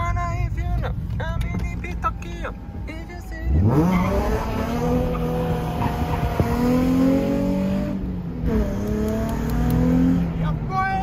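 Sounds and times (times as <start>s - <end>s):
car engine accelerating hard: 2.2s - 10.7s.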